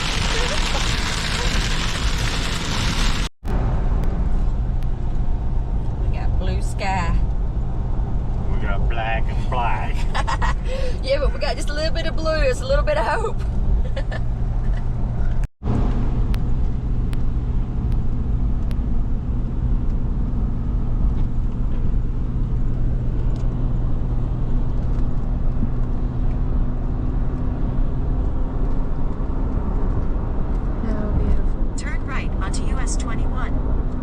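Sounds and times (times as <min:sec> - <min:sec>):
car cabin road and engine hum: 0:00.0 - 0:34.0.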